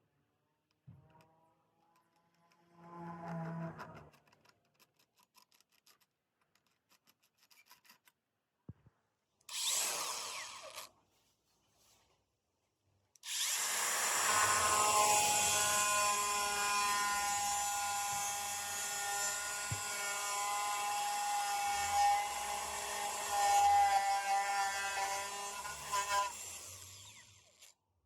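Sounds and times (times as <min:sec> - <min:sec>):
angle grinder whining: 0:09.5 - 0:10.9, 0:13.3 - 0:27.7.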